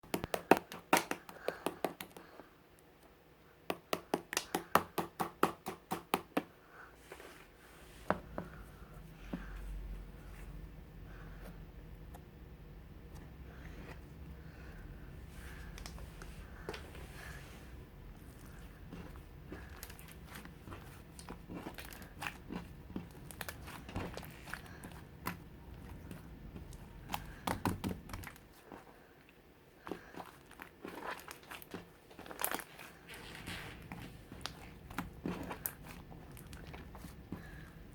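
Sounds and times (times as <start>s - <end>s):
slime squishing and crackling: 18.1s - 28.9s, 29.8s - 37.9s.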